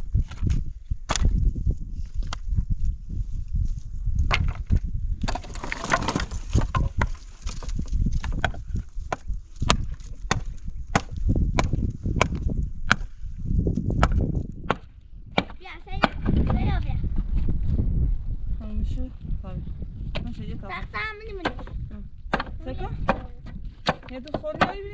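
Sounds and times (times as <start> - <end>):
sharp knocks: 21.4 - 24.8.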